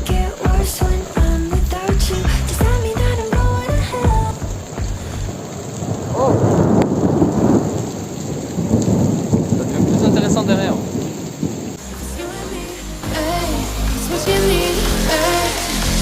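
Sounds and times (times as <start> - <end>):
heavy rain: 0.0 - 16.0
thunder rumbling: 0.3 - 11.9.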